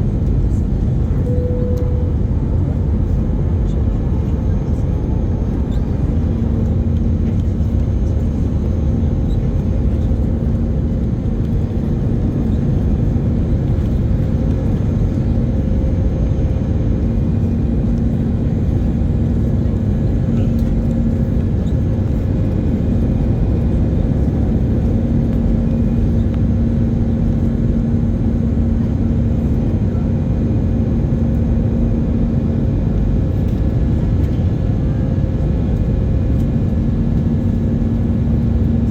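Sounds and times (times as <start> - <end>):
faint steady hum: 0.0 - 27.6
jet engine drone: 0.0 - 38.9.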